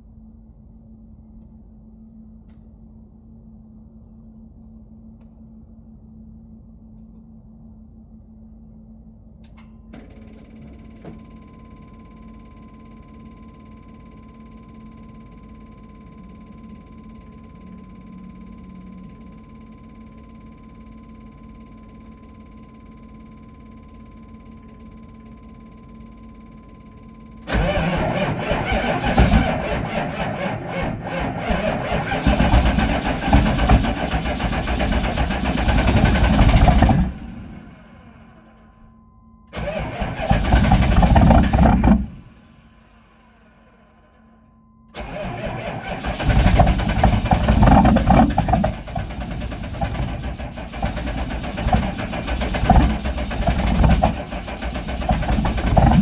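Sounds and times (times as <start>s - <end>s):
diesel engine cranking: 27.5s - 37.9s, 39.6s - 42.5s, 45.0s - 56.0s.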